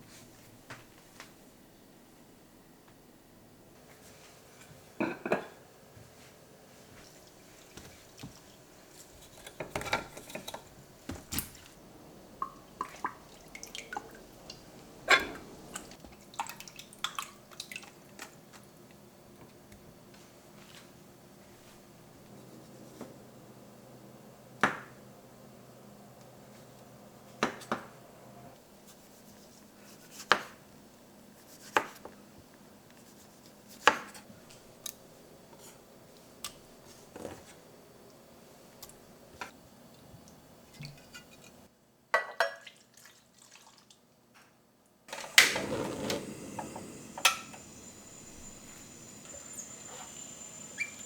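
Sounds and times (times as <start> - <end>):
dishes clinking: 5.0 - 5.6, 15.1 - 15.6.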